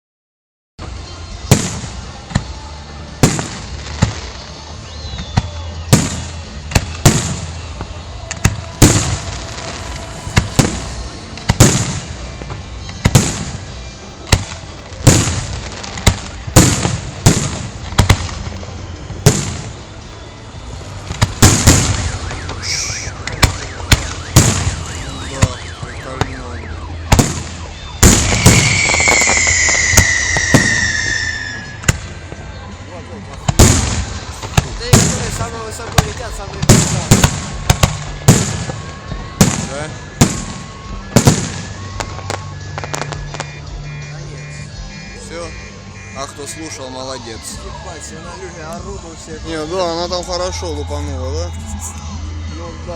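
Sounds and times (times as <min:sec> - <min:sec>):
continuous rumble: 0:00.8 - 0:29.0
fireworks bangs: 0:00.8 - 0:32.5, 0:33.2 - 0:46.8
fireworks hissing: 0:01.0 - 0:25.6, 0:27.2 - 0:32.5, 0:33.2 - 0:43.6
falling whistle: 0:04.8 - 0:05.7, 0:21.7 - 0:31.9.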